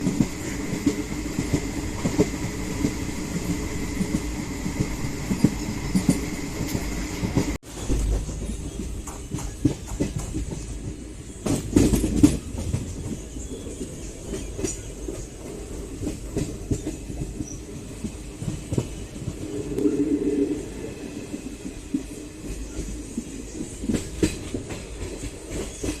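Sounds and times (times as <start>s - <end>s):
wheels clicking over rail joints: 0.0s - 19.9s
train rumble: 0.0s - 26.0s.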